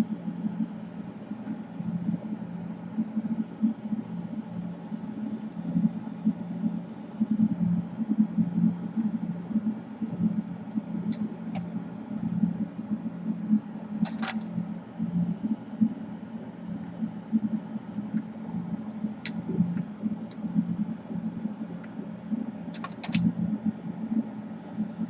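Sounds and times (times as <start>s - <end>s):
fan motor humming: 0.0s - 25.0s
sharp click: 14.0s - 14.5s, 22.8s - 23.3s.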